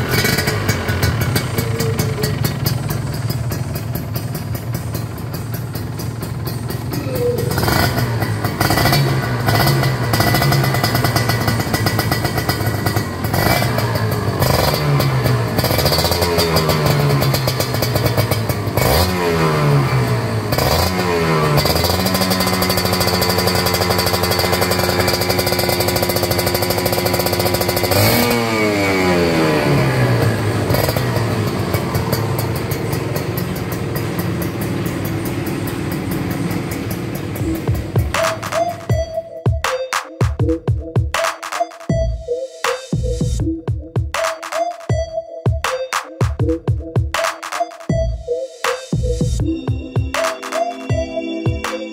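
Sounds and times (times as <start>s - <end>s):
motorcycle engine revving: 0.0s - 39.1s.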